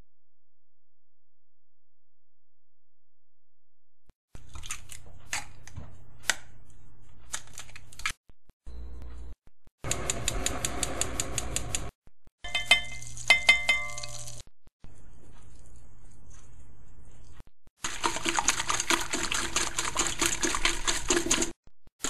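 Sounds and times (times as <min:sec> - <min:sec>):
ringing metal taps: 0:12.4 - 0:14.2
utensils clinking in bowl: 0:12.4 - 0:14.4
whisking in a bowl: 0:17.8 - 0:21.6.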